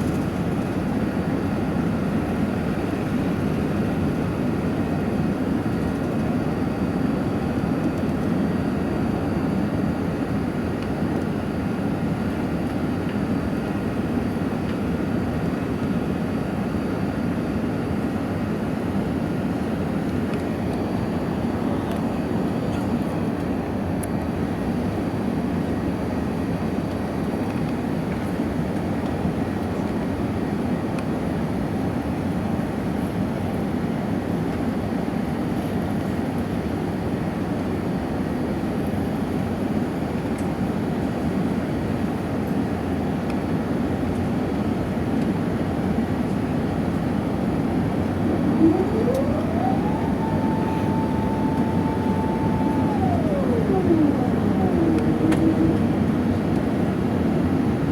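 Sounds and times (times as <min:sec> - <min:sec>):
jet engines rumbling in cabin: 0:00.0 - 0:34.6, 0:43.1 - 0:57.9
rising whine: 0:47.6 - 0:57.9.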